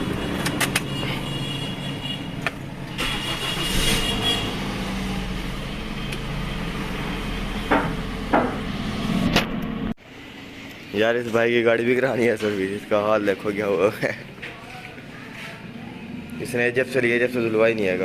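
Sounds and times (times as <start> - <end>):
car engine running: 2.4 - 9.9.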